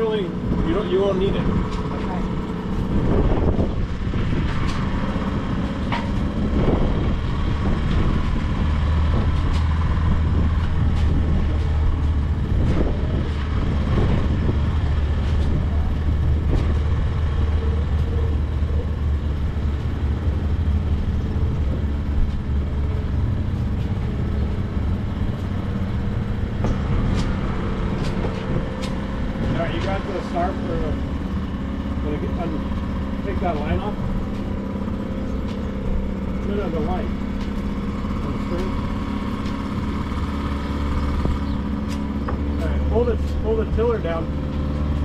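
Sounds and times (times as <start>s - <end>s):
outboard motor idling: 0.0s - 27.2s, 27.8s - 45.0s.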